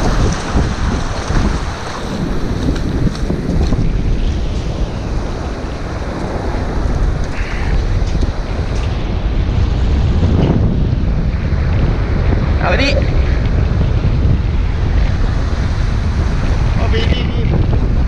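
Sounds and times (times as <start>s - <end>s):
small waves washing on sand: 0.0s - 18.0s
wind buffeting microphone: 0.0s - 18.0s.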